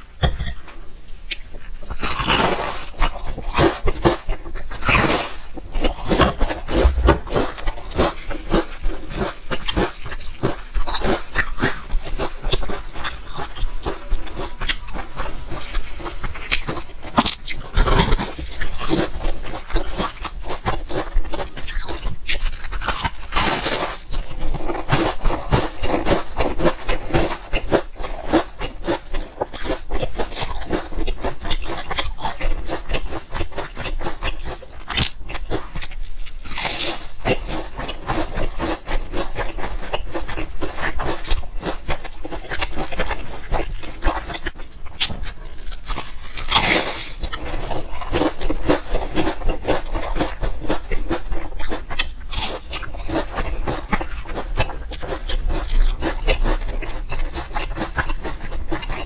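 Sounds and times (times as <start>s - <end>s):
chewing and crunching pastry: 0.0s - 59.0s.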